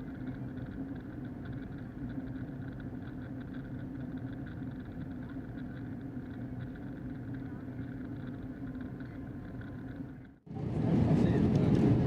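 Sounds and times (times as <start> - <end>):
airplane cabin engine drone: 0.0 - 12.0.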